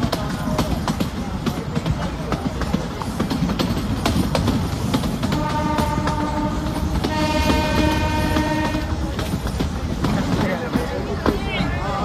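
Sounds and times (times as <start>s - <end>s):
train wheels rumbling and clicking: 0.0s - 12.0s
train horn blasts: 5.3s - 9.0s.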